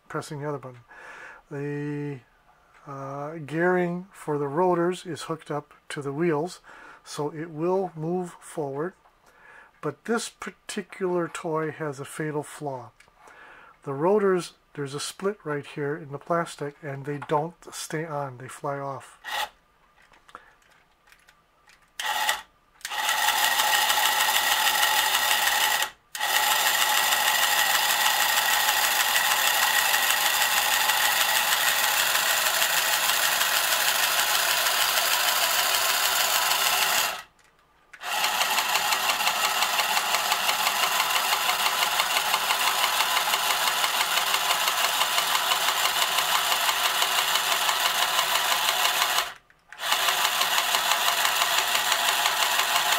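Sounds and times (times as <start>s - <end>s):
toy helicopter motor whirring: 19.2s - 19.6s, 22.0s - 37.3s, 38.0s - 52.9s.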